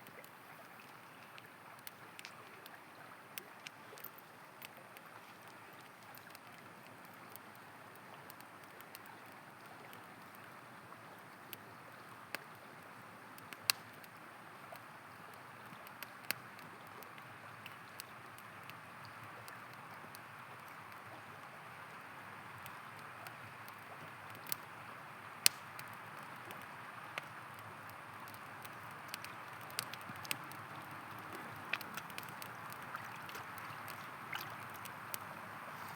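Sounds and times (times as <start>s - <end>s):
campfire crackling and popping: 0.0s - 35.9s
river flowing: 16.6s - 35.9s.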